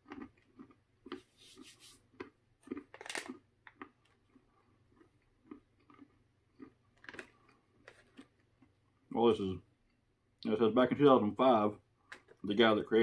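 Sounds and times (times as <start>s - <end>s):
peanuts being chewed: 0.0s - 9.2s
foil snack pouch crinkling: 2.8s - 3.8s.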